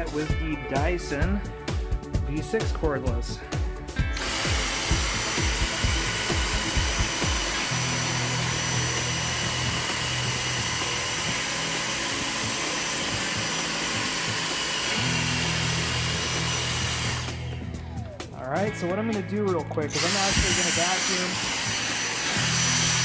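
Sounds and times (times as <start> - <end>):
techno music: 0.0 - 7.6
vacuum cleaner whining: 4.1 - 17.6, 19.9 - 23.0.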